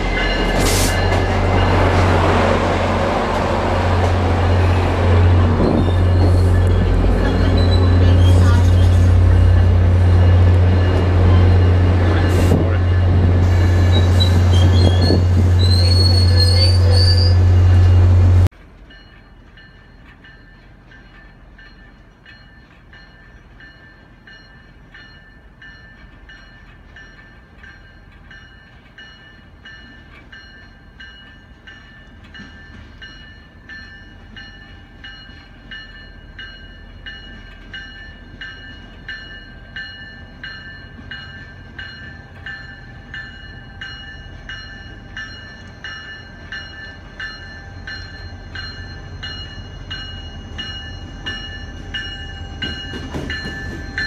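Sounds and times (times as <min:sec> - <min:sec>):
distant train approaching: 0:00.0 - 0:54.0
train low drone: 0:00.0 - 0:54.0
wheels squealing: 0:05.6 - 0:09.4, 0:13.6 - 0:17.9.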